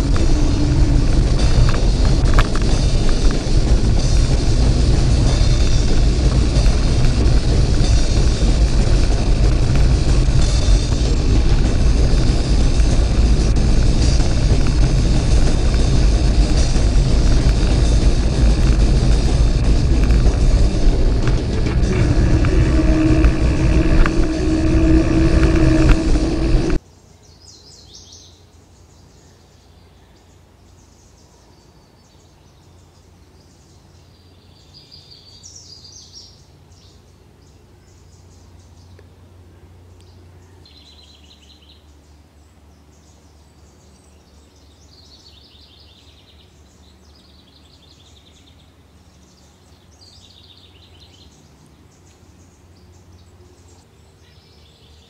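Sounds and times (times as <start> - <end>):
rush of wind: 0.0 - 26.8.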